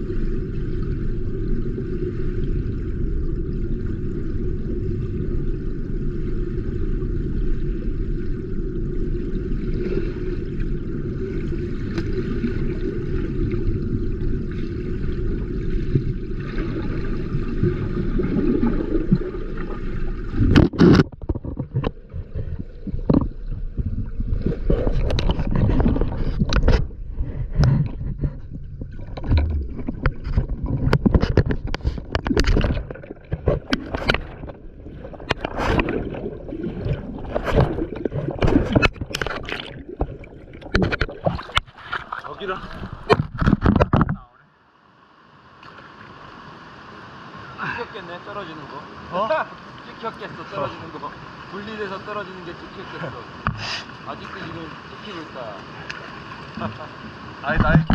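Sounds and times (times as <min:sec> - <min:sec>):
water rushing and gurgling: 0:00.0 - 0:57.9
knocks scrapes and splashes: 0:15.8 - 0:44.3, 0:57.5 - 0:57.9.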